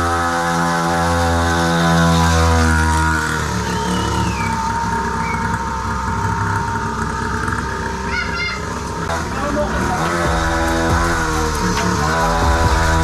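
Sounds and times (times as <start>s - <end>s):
small two-stroke engine running: 0.0s - 13.0s.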